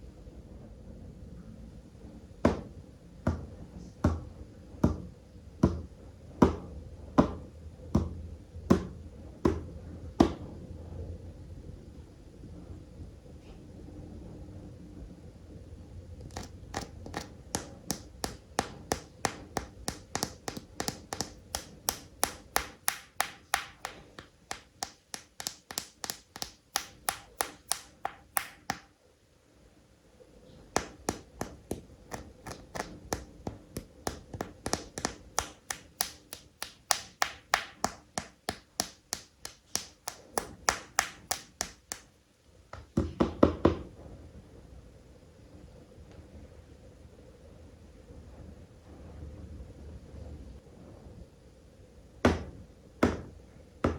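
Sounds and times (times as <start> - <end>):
tapping on plastic toys: 2.5 - 3.5, 4.1 - 10.4, 16.2 - 28.9, 30.7 - 42.1.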